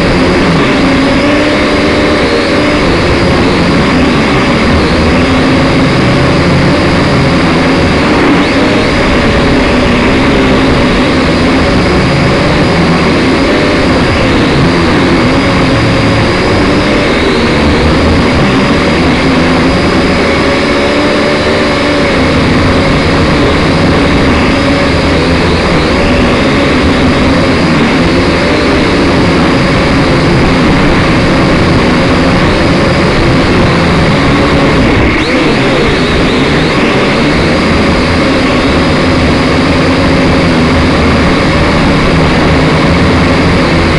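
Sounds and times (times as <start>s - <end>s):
drone motors whining: 0.0s - 43.9s
steady rush of noise: 0.0s - 43.9s.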